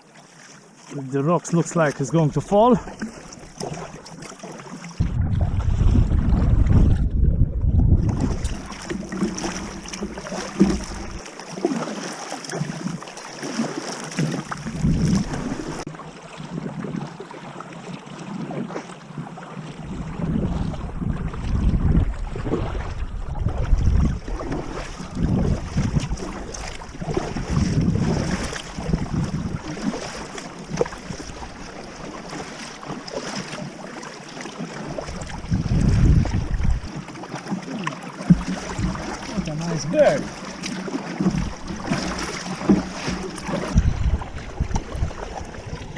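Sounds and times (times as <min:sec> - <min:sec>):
water sloshing and splashing: 0:00.0 - 0:45.9
wind gusting on microphone: 0:05.0 - 0:08.7, 0:14.7 - 0:15.8, 0:19.8 - 0:29.9, 0:35.2 - 0:37.0, 0:43.5 - 0:45.9.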